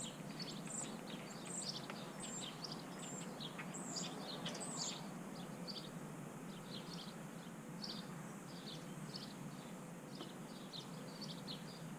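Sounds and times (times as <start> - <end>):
songbirds chirping: 0.0 - 11.9.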